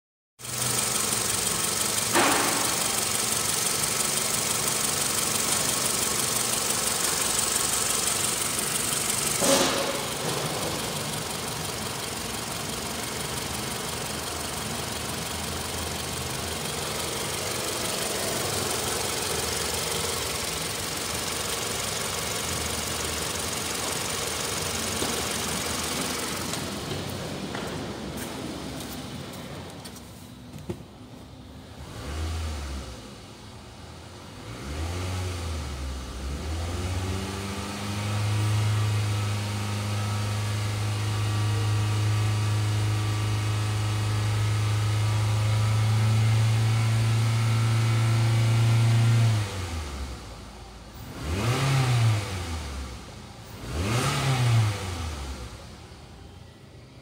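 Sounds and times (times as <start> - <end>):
car engine idling: 0.4 - 32.1.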